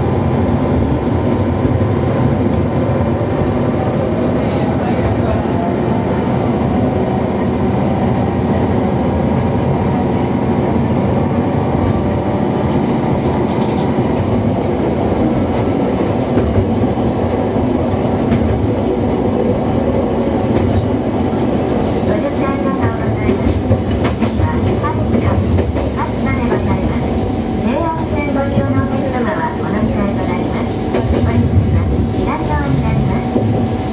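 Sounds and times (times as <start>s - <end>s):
diesel railcar engine drone: 0.0s - 33.9s
wheels rumbling on rails: 7.9s - 33.9s.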